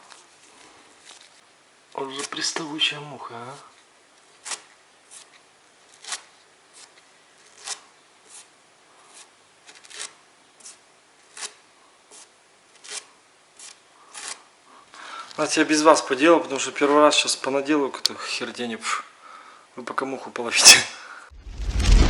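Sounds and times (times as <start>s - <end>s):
putty knife scraping grout: 9.1s - 14.4s.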